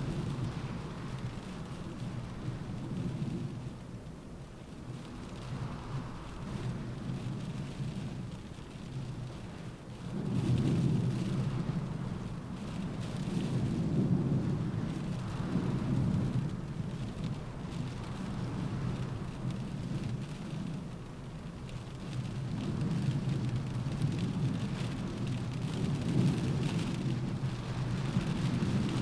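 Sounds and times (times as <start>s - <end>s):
rain in windstorm: 0.0s - 29.0s.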